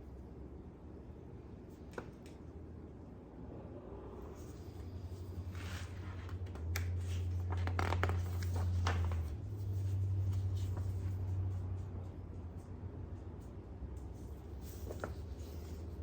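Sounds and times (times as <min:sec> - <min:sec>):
low hum: 0:02.4 - 0:16.0
paper rustling and crinkling: 0:05.5 - 0:11.4.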